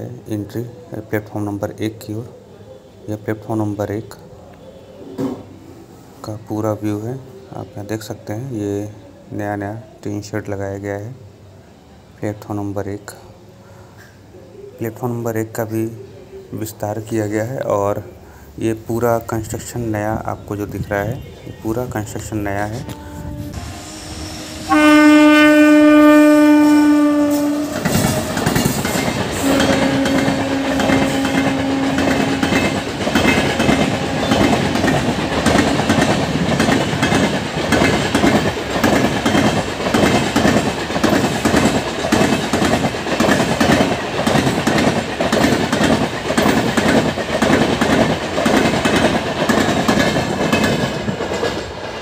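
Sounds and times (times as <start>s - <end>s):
train horn blast: 22.7s - 28.5s, 29.4s - 32.9s
train wheels clattering on rails: 27.2s - 52.0s.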